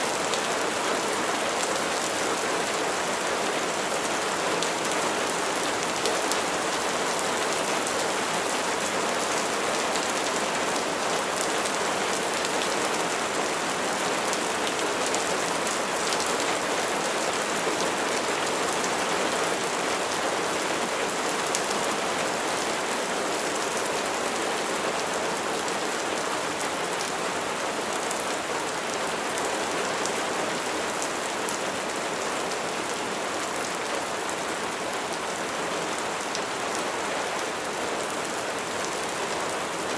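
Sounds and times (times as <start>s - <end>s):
rain pattering on a surface: 0.1s - 39.9s.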